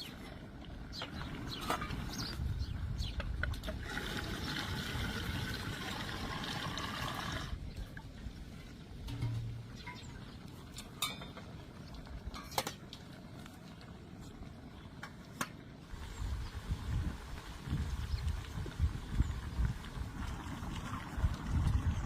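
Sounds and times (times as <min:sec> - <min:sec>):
water pouring: 0:03.8 - 0:08.1, 0:19.7 - 0:22.0.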